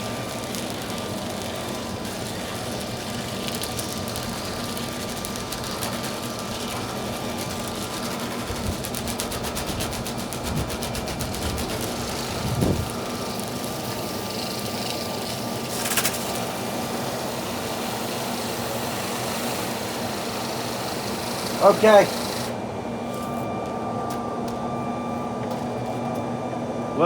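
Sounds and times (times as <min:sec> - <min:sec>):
vacuum collector humming: 0:00.0 - 0:27.0
fast fine rattle: 0:14.4 - 0:16.4.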